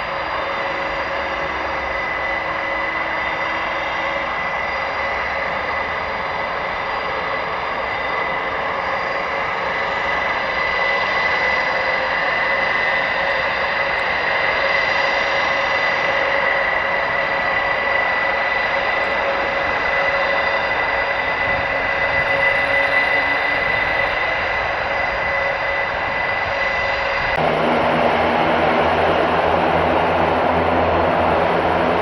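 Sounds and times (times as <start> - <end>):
turboprop engines running: 0.0 - 32.0.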